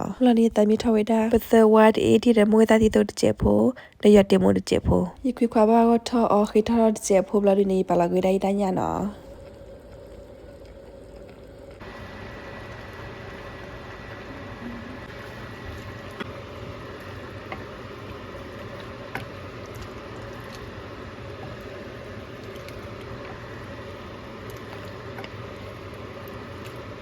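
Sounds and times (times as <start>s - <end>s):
chicken sizzling in a pot: 11.7s - 27.0s.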